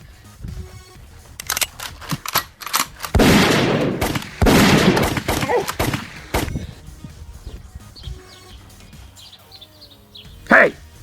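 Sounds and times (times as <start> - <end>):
gun clicks: 1.4 - 6.5
gunshot blasts: 3.2 - 6.6.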